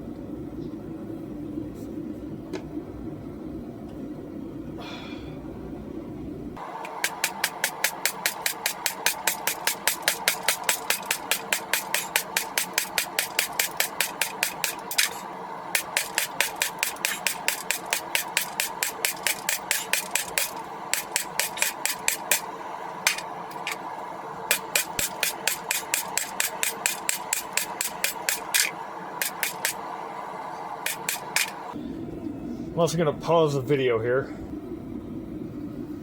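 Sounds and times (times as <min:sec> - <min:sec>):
faint steady hum: 0:00.0 - 0:36.0
hammer striking metal on anvil: 0:15.8 - 0:22.5, 0:23.1 - 0:23.7, 0:24.5 - 0:29.8.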